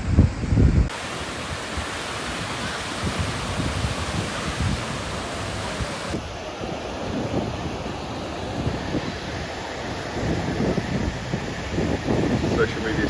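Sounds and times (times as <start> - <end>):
wind on the microphone: 0.0 - 13.0
sea surf rushing: 0.9 - 6.6.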